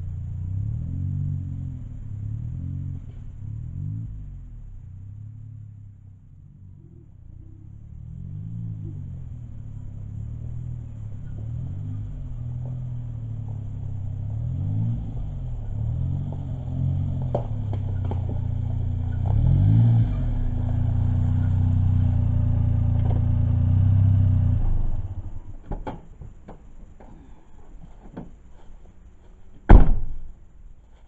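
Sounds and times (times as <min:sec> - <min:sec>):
car engine revving: 0:00.0 - 0:25.6
sharp clicks and knocks: 0:25.6 - 0:28.7.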